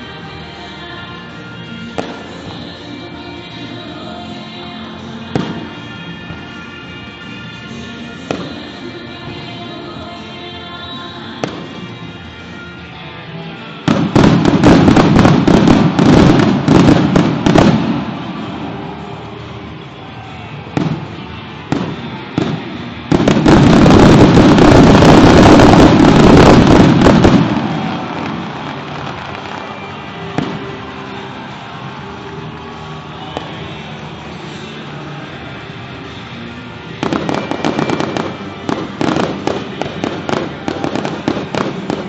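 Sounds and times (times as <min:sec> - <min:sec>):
music playing: 0:00.0 - 0:42.0
fireworks exploding: 0:05.3 - 0:06.7, 0:11.4 - 0:12.2, 0:13.8 - 0:19.8, 0:20.8 - 0:31.2, 0:37.0 - 0:42.0.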